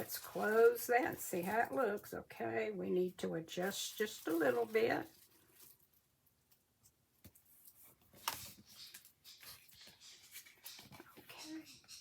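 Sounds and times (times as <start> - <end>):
paper rustling: 0.0 - 1.9, 3.6 - 6.0.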